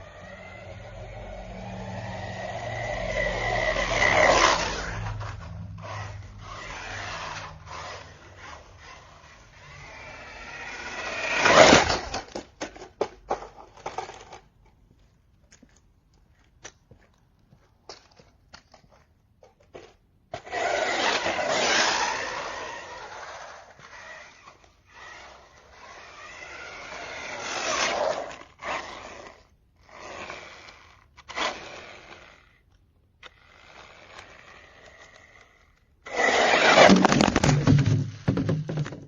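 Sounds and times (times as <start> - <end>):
rc car motor whining: 0.0 - 12.4, 20.4 - 37.1
tyres scraping over ground: 0.0 - 39.0.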